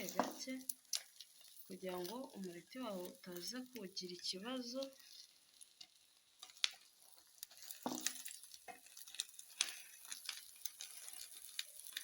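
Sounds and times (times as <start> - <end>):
omelette frying in a pan: 0.0 - 12.0
spatula scraping a pan: 4.9 - 12.0.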